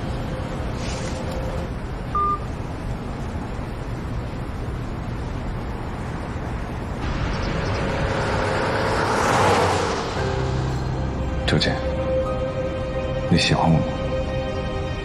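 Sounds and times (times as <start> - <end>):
steady low rumble: 0.0 - 13.2.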